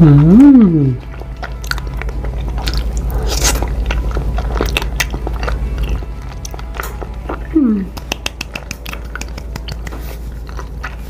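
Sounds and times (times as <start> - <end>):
sticky wet chewing: 1.0 - 11.0.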